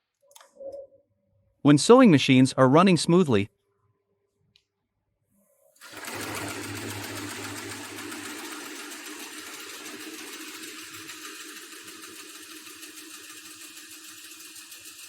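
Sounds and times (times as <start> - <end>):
industrial sewing machine rattling: 5.8 - 15.0.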